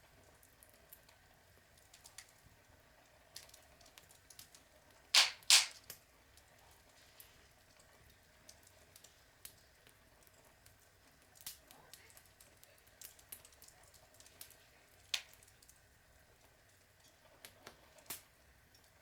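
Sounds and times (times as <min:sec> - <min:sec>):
log fire crackling: 0:00.1 - 0:19.0
loud sharp fire snaps: 0:05.2 - 0:06.0.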